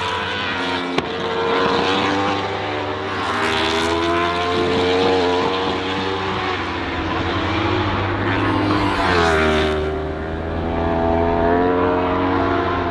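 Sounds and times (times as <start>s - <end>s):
superbike engines revving: 2.6s - 12.8s.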